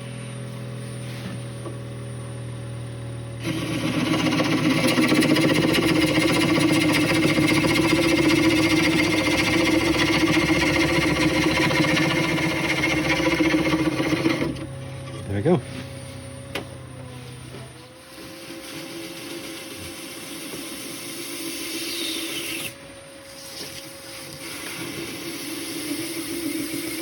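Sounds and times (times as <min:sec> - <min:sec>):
bench grinder motor running: 0:01.0 - 0:27.0
metal tool grinding on wheel: 0:03.4 - 0:15.6.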